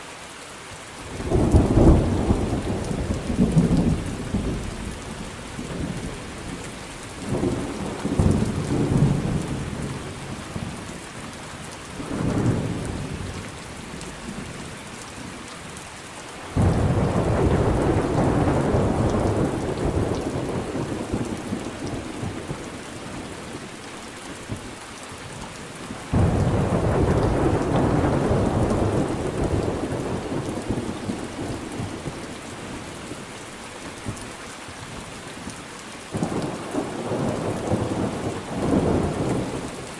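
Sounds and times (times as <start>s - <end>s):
steady rain falling: 0.0s - 39.9s
low rolls of thunder: 1.2s - 6.6s, 7.2s - 10.8s, 16.4s - 23.6s, 26.1s - 32.7s, 36.1s - 39.8s
sharp thunderclap: 16.5s - 22.4s, 26.1s - 31.9s.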